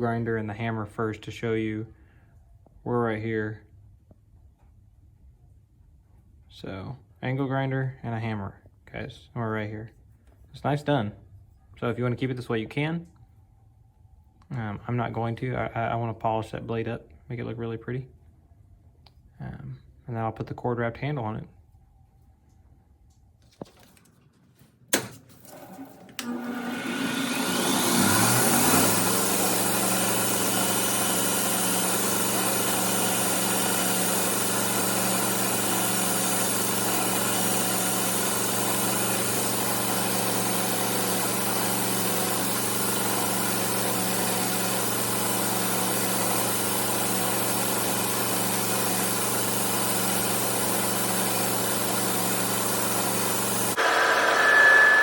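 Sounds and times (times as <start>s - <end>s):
bench grinder motor running: 25.6s - 55.0s.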